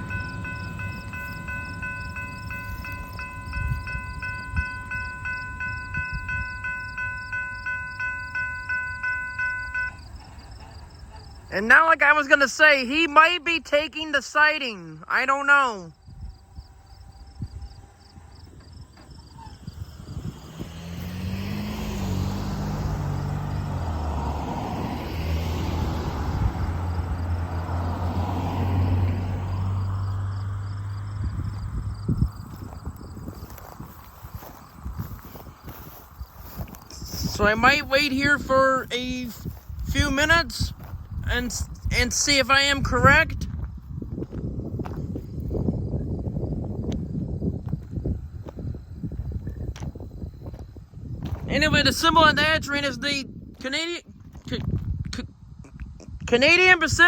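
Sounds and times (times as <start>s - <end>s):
crossing signal bell ringing: 0.0s - 11.9s
rumbling train wheels: 0.0s - 12.6s
freight train rumbling past: 0.0s - 12.7s, 16.4s - 32.2s
diesel locomotive engine drone: 0.0s - 14.4s, 15.0s - 43.3s.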